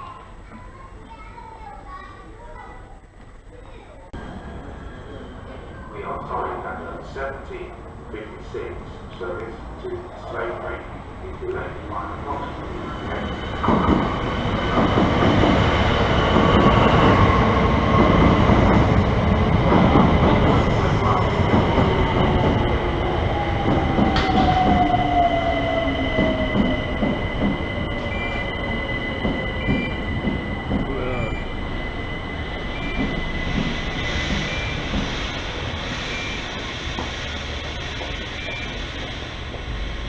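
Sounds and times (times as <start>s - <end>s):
train wheels clattering on rails: 13.2s - 22.7s, 23.6s - 25.2s, 26.1s - 31.3s, 32.6s - 39.8s.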